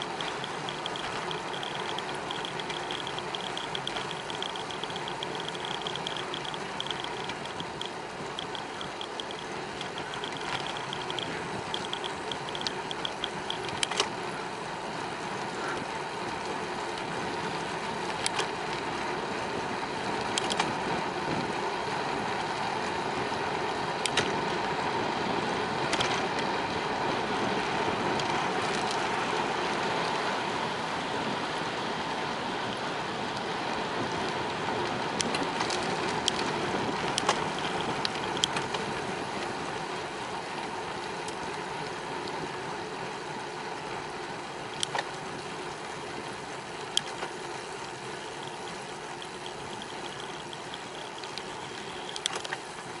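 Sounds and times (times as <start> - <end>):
rapid high ticking: 0.0 - 13.9
bicycle tyres on road: 0.0 - 53.0.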